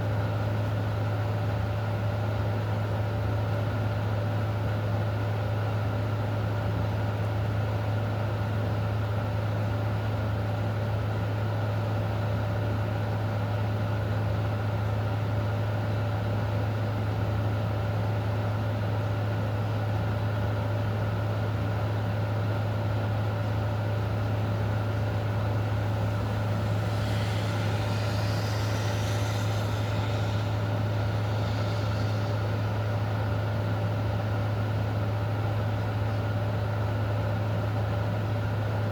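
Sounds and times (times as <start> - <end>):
low mechanical hum: 0.0 - 38.9
thin steady tones: 24.2 - 34.4
faint hiss: 24.2 - 35.1.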